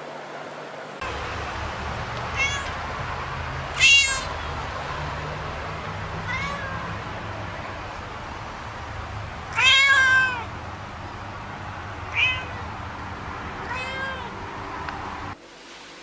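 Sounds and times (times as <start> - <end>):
steady low hum: 0.0 - 16.0
cat meowing: 2.3 - 2.8, 3.7 - 4.5, 6.2 - 7.0, 9.5 - 10.5, 12.0 - 12.7, 13.6 - 14.4.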